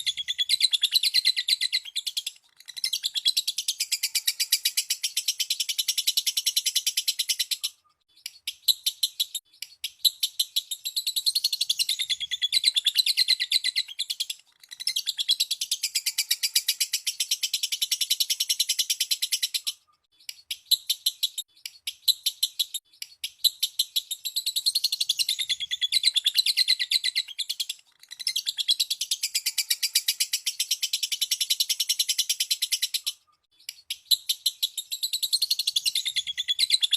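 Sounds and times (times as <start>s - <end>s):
lovebird chirping: 0.0s - 36.9s.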